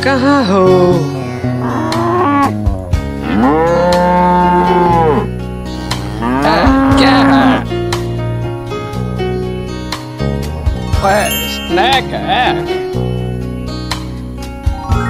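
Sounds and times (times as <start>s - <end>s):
background music: 0.0s - 15.0s
cow mooing: 1.4s - 7.8s.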